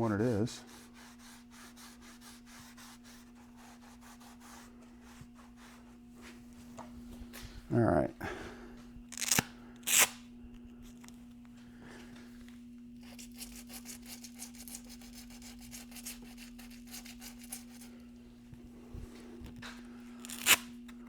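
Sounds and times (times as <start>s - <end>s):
sanding block rubbing strokes: 0.6s - 5.8s, 13.4s - 17.8s.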